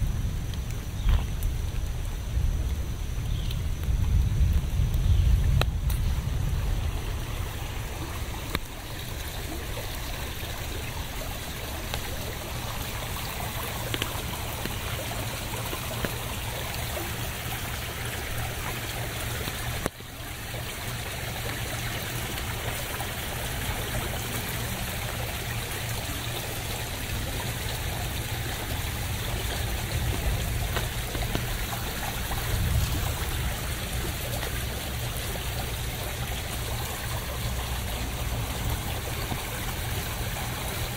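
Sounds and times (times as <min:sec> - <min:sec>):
low rumble: 0:00.0 - 0:08.5
steady rain hiss: 0:00.0 - 0:40.9.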